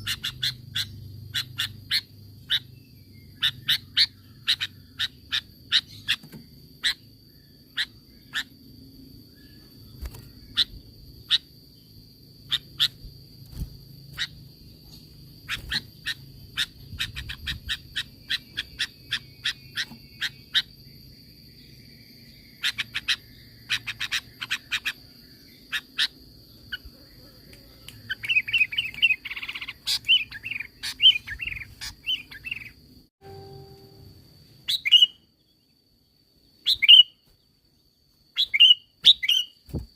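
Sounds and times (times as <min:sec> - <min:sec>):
bulbul calling: 0:00.0 - 0:07.1, 0:12.4 - 0:20.8, 0:28.0 - 0:33.7, 0:34.7 - 0:35.2, 0:36.6 - 0:37.2
steady high whine: 0:33.2 - 0:34.6.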